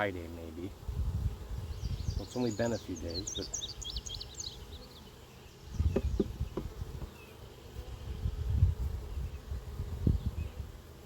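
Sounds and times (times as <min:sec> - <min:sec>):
honeybees buzzing: 0:00.0 - 0:11.0
low bumps: 0:05.8 - 0:07.2.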